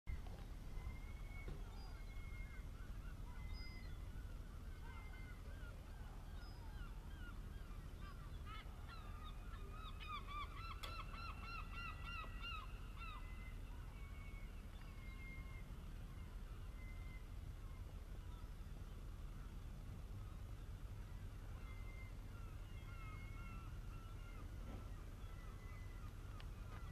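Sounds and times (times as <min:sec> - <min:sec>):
birds calling: 0:00.1 - 0:26.9
low steady hum: 0:00.1 - 0:26.9.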